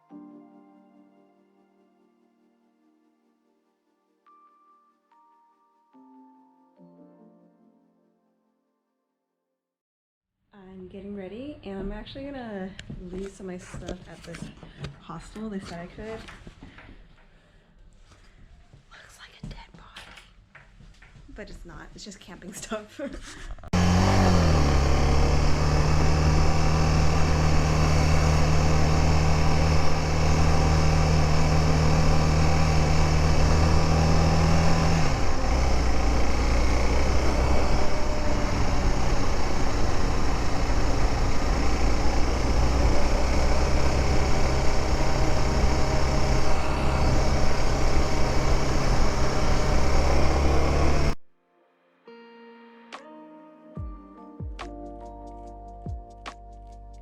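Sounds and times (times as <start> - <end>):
motorcycle engine under way: 23.7 - 51.2.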